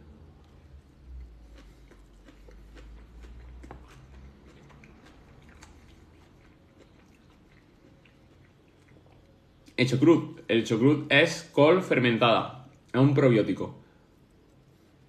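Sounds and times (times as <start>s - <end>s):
person chewing salad: 0.4s - 9.8s.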